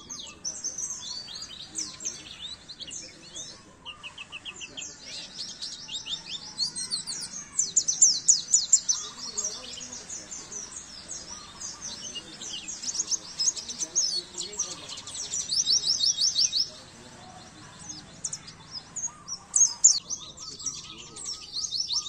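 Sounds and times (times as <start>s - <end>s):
bird twittering song: 0.0s - 22.0s.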